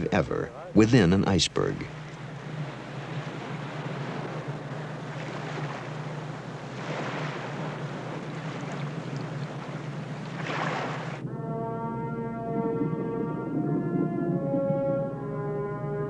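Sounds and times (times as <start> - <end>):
surf washing in: 0.0 - 11.2
low hum: 0.0 - 16.0
wind noise: 1.8 - 11.7
held musical notes: 11.2 - 16.0.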